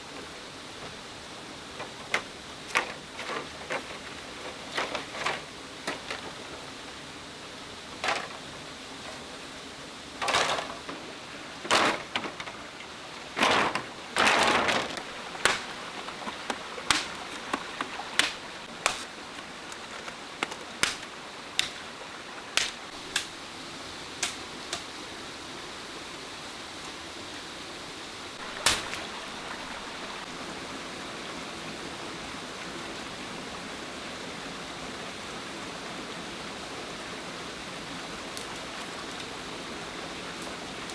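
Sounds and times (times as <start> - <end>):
steady hiss: 0.0 - 40.9
rustling scrapes: 2.7 - 6.2, 10.2 - 21.9
sharp knocks and clicks: 14.7 - 21.8, 22.6 - 23.3.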